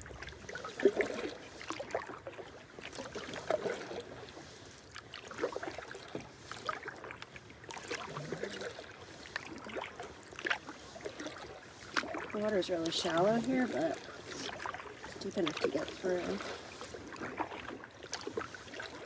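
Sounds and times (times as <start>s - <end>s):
paddle splashing through water: 0.0s - 19.0s
water drips: 12.0s - 16.6s.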